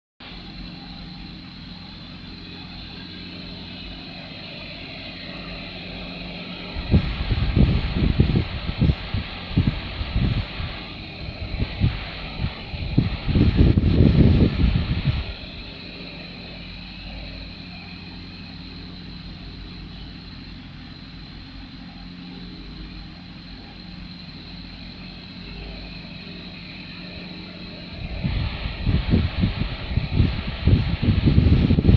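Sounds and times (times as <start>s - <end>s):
electric fan buzzing hum: 0.2s - 31.9s.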